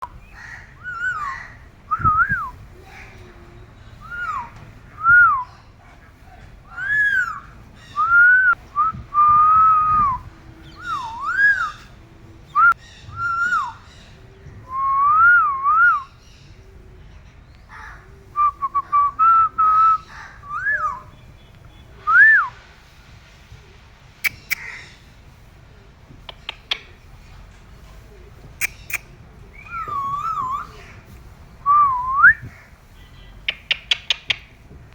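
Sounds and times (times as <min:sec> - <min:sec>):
parrot whistling: 0:00.8 - 0:01.3, 0:04.0 - 0:05.5, 0:10.8 - 0:11.8, 0:29.6 - 0:30.7.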